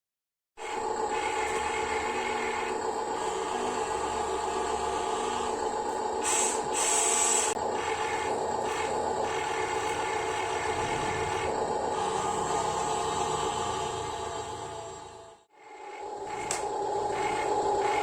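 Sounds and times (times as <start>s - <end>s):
small electric gear motors whining: 0.6s - 18.0s.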